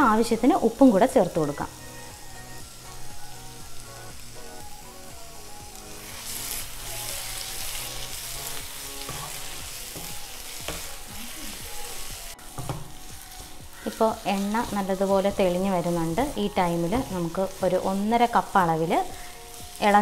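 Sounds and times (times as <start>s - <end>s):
masala sizzling in a frying pan: 0.0s - 20.0s
wooden spatula scraping a pan: 9.0s - 15.2s.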